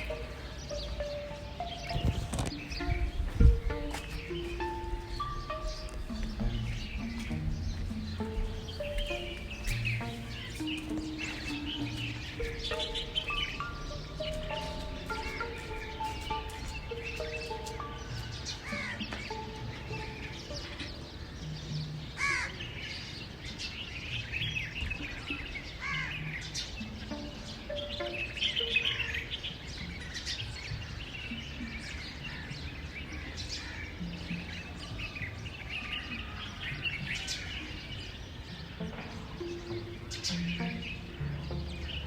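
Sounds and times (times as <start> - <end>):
birds chirping and trilling: 0.0 - 42.0.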